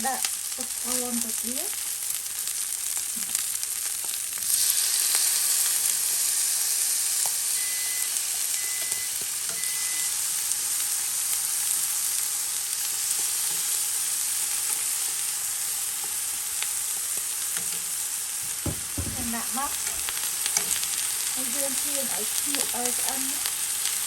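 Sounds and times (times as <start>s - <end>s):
food sizzling in a pan: 0.0s - 24.0s
short high electronic beeps: 7.6s - 10.1s.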